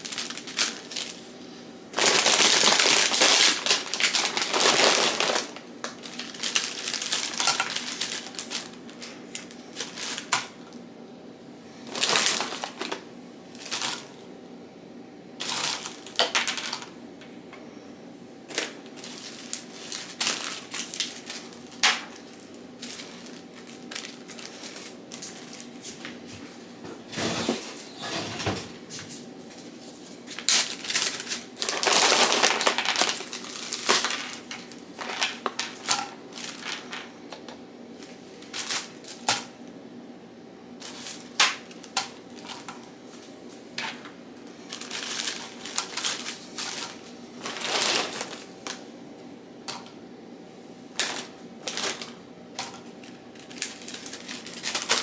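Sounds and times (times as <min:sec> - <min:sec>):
scraping or rustling: 0:26.9 - 0:30.1.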